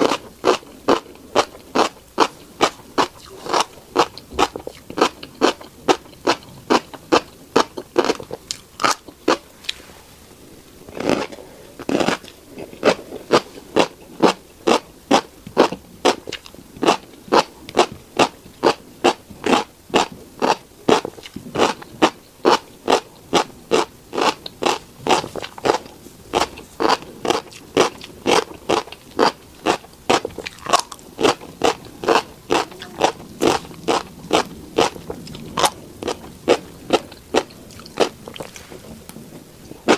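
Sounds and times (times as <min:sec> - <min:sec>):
seeds crunching while chewed: 0:00.0 - 0:09.8, 0:10.9 - 0:39.9
soft scraping: 0:09.5 - 0:13.7, 0:38.2 - 0:39.7.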